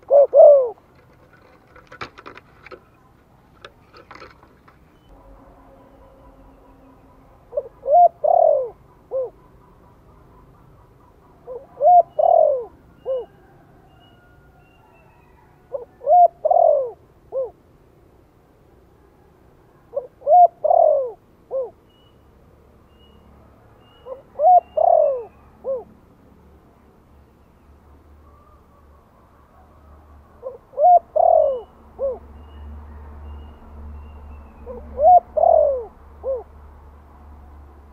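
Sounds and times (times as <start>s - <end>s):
dove cooing: 0.0s - 3.0s, 5.2s - 17.6s, 19.8s - 21.8s, 24.0s - 25.9s, 28.2s - 32.3s, 34.6s - 36.6s.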